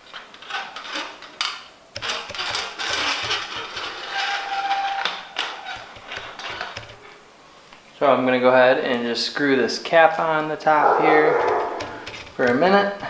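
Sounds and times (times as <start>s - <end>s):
metal scraping and rustling: 0.0s - 7.1s, 10.7s - 12.6s.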